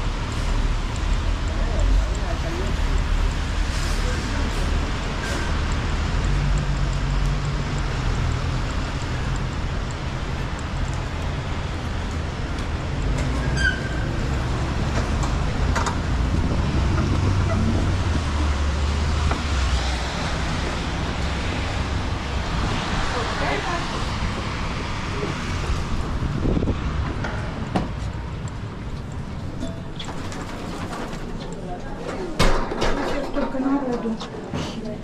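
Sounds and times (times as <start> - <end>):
vehicle engines humming: 0.0 - 30.1
sharp clicks: 0.3 - 13.3.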